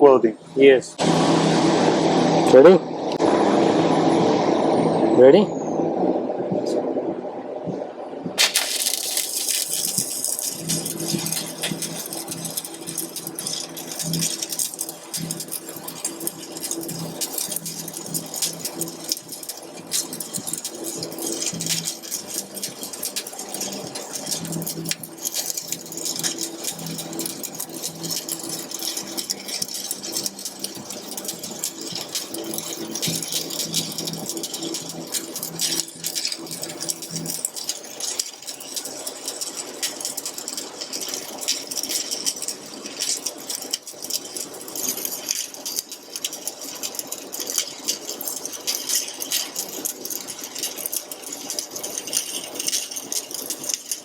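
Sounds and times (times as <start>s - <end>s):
low hum: 0.4s - 8.8s
welding arc crackling: 8.3s - 54.0s.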